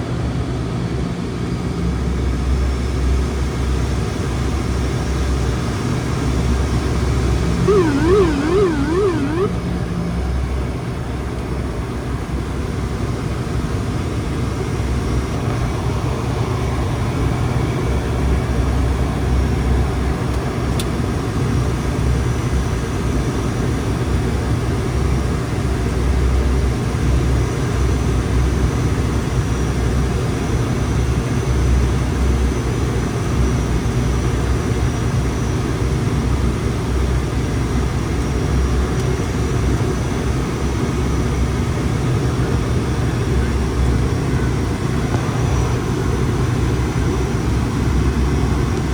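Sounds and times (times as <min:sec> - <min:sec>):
turboprop engines droning: 0:07.4 - 0:09.8.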